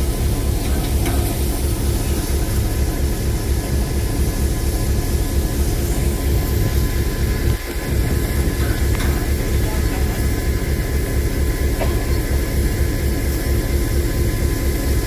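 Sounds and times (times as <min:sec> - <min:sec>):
locomotive engine idling: 0:00.0 - 0:15.0.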